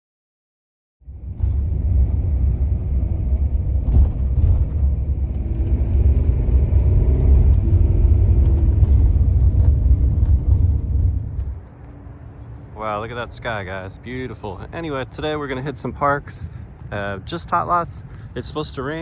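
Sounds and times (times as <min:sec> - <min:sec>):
loud low rumble: 0:01.0 - 0:11.7.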